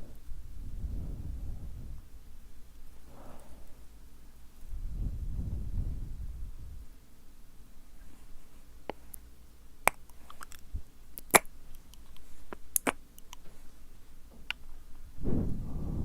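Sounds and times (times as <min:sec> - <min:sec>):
wet lip and tongue clicks: 0:09.9 - 0:10.6, 0:11.2 - 0:13.5.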